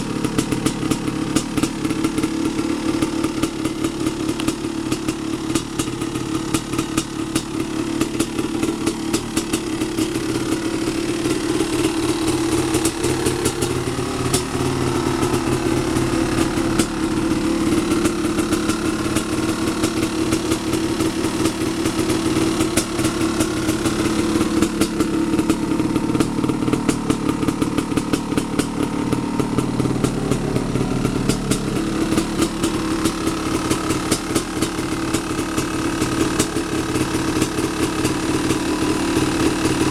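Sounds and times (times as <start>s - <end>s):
two-stroke engine fast idle: 0.0s - 39.9s.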